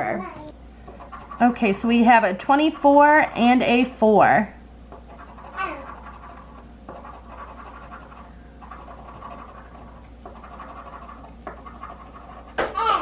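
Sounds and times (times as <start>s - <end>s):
coin scratching ticket: 5.1s - 12.6s.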